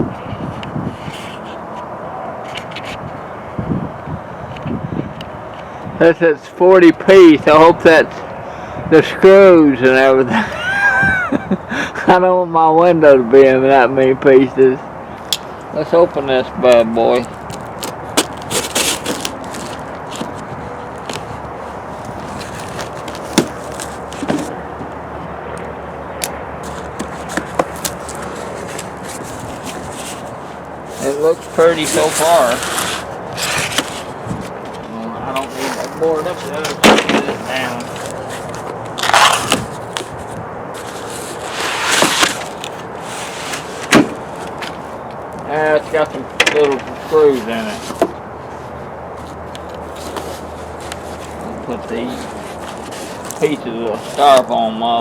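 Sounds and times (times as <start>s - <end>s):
steady background noise: 0.0s - 55.0s
packaging scraping: 17.1s - 24.6s, 26.6s - 45.0s, 46.7s - 48.1s, 49.8s - 54.5s
cardboard box knocks and rustles: 22.4s - 24.6s, 43.8s - 44.3s.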